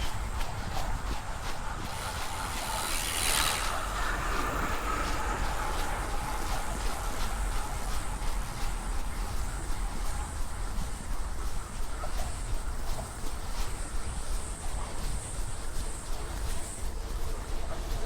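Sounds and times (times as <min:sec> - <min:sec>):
runner's footsteps: 0:00.0 - 0:18.0
wind rumble on microphone: 0:00.0 - 0:18.0.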